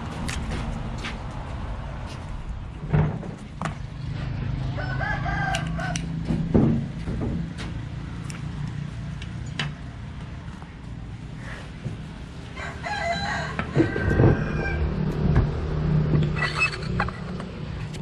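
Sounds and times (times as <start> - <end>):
rooster crowing: 4.6 - 6.2, 12.5 - 15.2
sharp knocks: 6.2 - 7.8.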